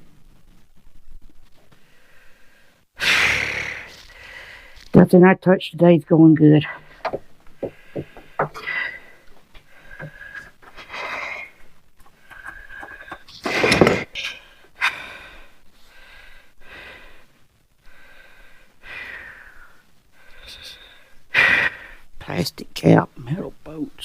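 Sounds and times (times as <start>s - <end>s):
loud huff: 3.0s - 4.0s
man breathing hard and wheezing: 6.9s - 22.1s.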